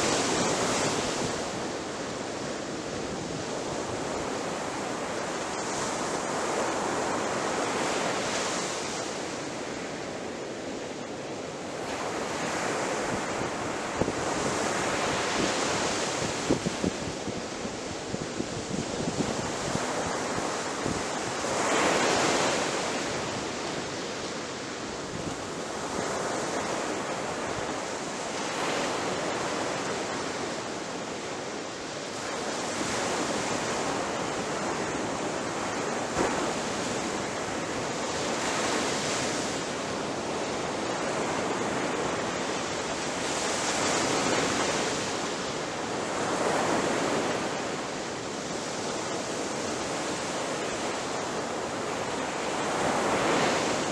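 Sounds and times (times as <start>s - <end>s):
waves breaking on shore: 0.0s - 53.9s.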